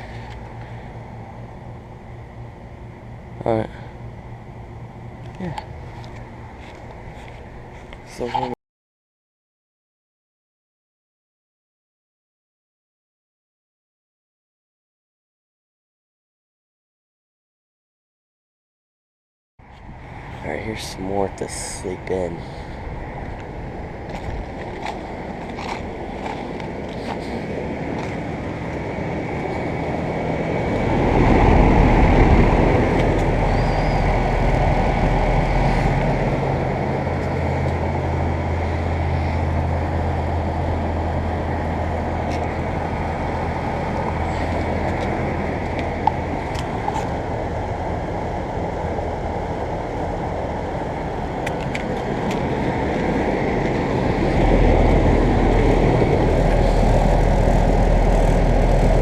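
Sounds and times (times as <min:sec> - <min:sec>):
low compressor hum: 0:00.0 - 0:08.5, 0:19.6 - 0:59.0
fan rush: 0:00.0 - 0:08.6, 0:19.6 - 0:59.0.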